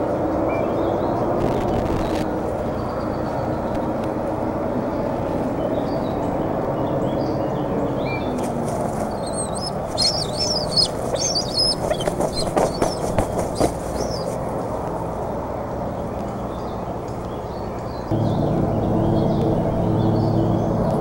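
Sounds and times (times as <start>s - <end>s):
birds chirping: 0.0s - 21.0s
low background rumble: 0.0s - 21.0s.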